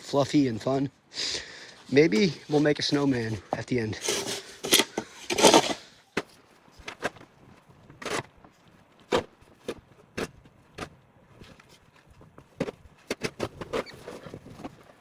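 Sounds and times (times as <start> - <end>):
snow shovel scraping snow: 0.0 - 6.0.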